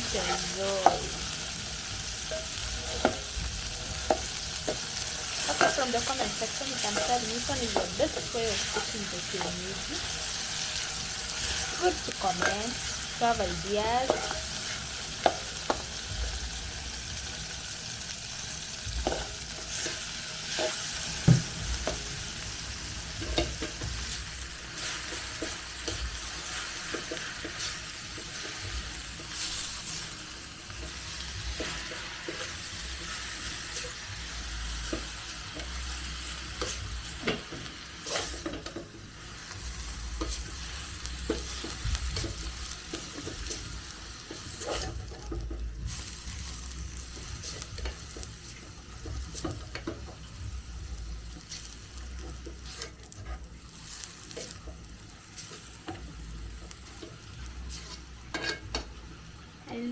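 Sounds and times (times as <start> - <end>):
greens sizzling in a pan: 0.0 - 59.9
spoon scraping and tapping pan: 2.2 - 3.3, 4.0 - 9.6, 14.0 - 15.9, 19.0 - 22.2, 23.2 - 24.2, 30.8 - 34.0, 56.9 - 58.9.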